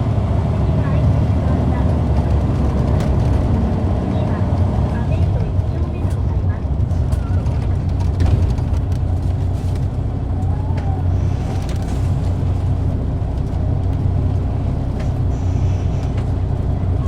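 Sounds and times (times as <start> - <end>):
bus diesel engine drone: 0.0 - 17.0.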